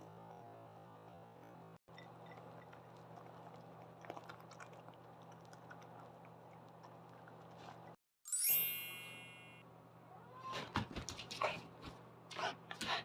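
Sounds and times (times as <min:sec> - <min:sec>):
bright chime: 0:08.3 - 0:09.6.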